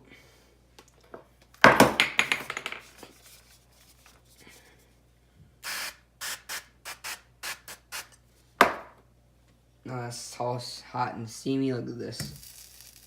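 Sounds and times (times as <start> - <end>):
faint handling sounds: 3.0 - 5.2
short hissing burst: 5.6 - 8.1.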